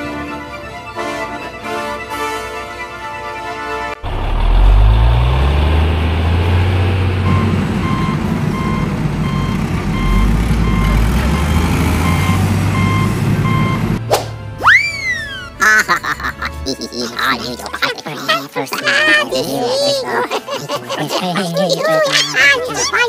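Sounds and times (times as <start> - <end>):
heavy diesel engine rumbling: 0.1 - 14.1
reversing alarm beeping: 7.2 - 14.0.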